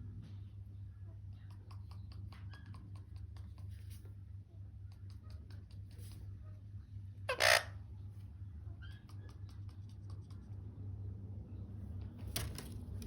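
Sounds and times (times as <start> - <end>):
parakeet squawking harshly: 7.3 - 7.8.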